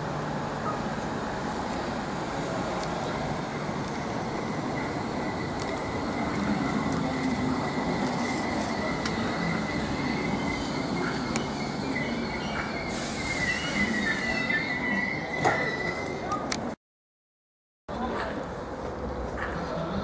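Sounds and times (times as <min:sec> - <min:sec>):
train rumble: 0:00.0 - 0:16.7
high-pitched train squeal: 0:04.1 - 0:16.4.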